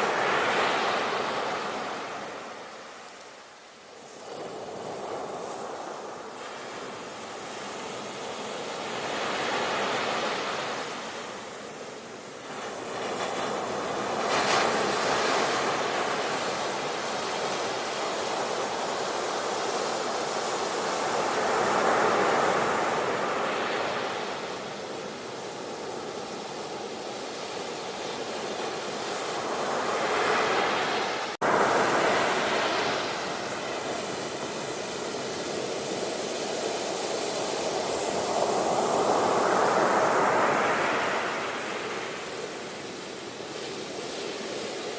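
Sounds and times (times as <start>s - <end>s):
sea waves breaking: 12.4s - 44.9s.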